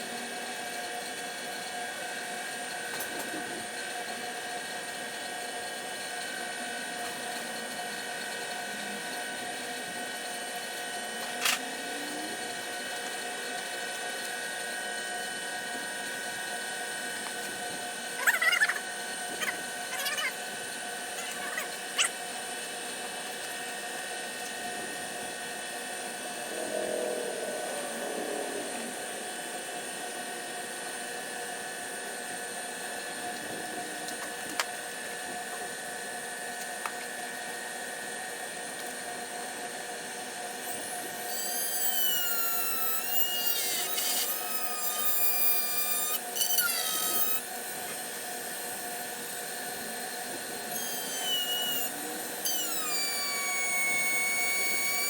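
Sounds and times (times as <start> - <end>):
power tool motor whining: 4.9 - 32.3, 40.6 - 55.0
machine hum: 6.0 - 36.4.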